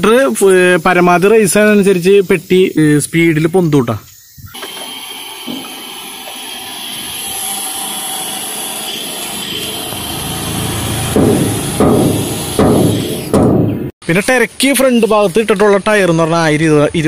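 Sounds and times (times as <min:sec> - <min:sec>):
truck engine revving: 0:08.9 - 0:13.4.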